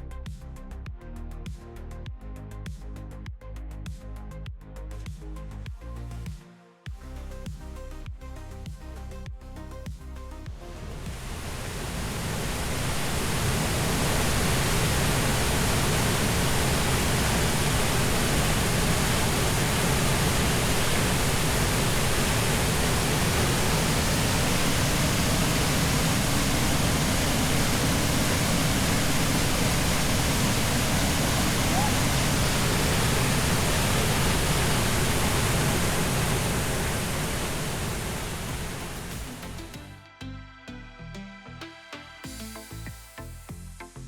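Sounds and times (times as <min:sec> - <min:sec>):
waterfall roaring: 0:11.1 - 0:39.6.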